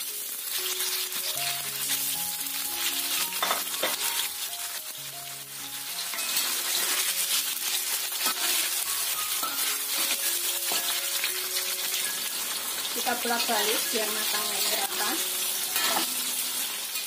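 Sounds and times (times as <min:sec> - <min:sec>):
soft background music: 0:00.0 - 0:17.0
tofu deep-frying in hot oil: 0:00.0 - 0:17.0.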